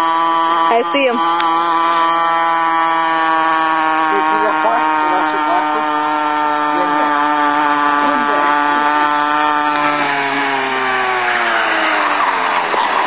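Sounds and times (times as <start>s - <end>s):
small motorcycle engine buzzing: 0.0s - 13.0s.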